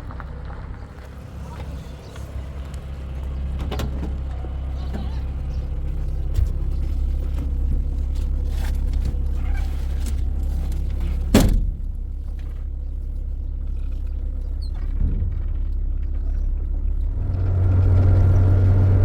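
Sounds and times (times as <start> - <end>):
vehicle engine humming: 0.0 - 19.0
sharp thump: 11.3 - 11.8.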